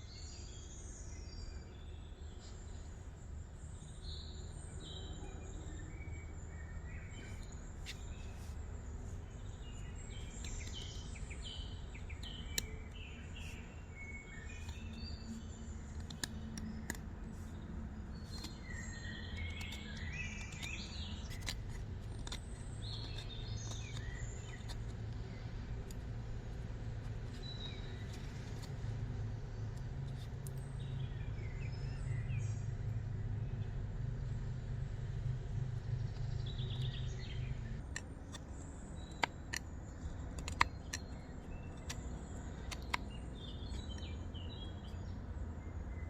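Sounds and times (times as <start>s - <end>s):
small birds chirping: 0.0s - 46.0s
low outdoor rumble: 2.2s - 46.0s
sharp clicks: 15.9s - 17.1s, 36.0s - 44.1s.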